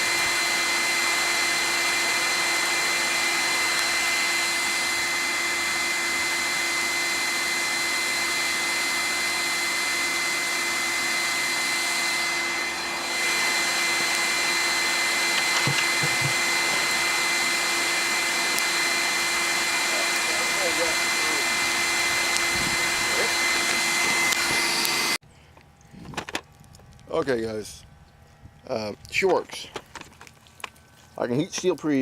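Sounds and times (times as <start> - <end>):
electric air blower running: 0.0 - 25.3.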